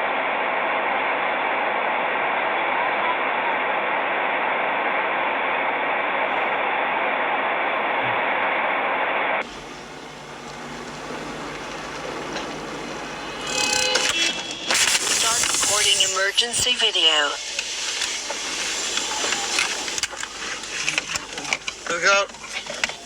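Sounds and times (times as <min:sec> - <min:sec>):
traffic noise: 0:09.4 - 0:16.3, 0:17.1 - 0:23.0
vehicle road and engine hiss: 0:09.4 - 0:16.3.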